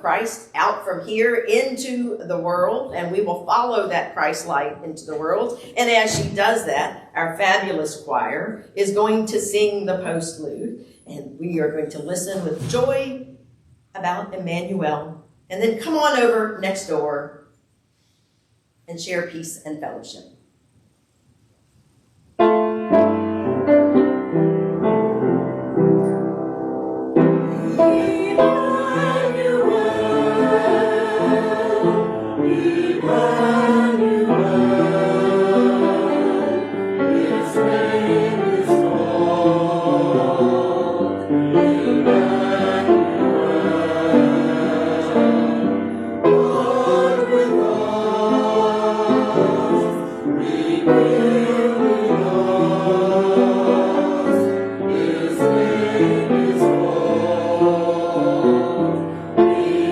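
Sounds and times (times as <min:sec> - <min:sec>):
church choir singing: 0:26.1 - 0:59.9.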